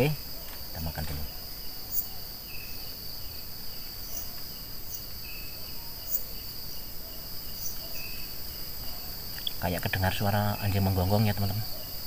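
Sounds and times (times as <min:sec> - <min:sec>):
crickets trilling: 0:00.0 - 0:12.0
insect chirps: 0:00.0 - 0:12.0
distant dog barking: 0:11.4 - 0:12.0.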